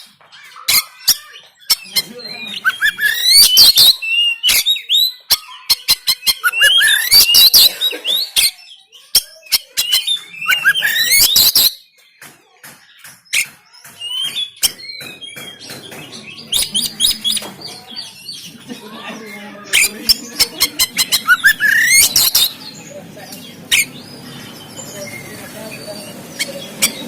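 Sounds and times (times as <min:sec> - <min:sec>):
songbird whistles and clicks: 0:02.6 - 0:07.6, 0:09.0 - 0:11.8, 0:13.0 - 0:17.5, 0:20.8 - 0:22.5.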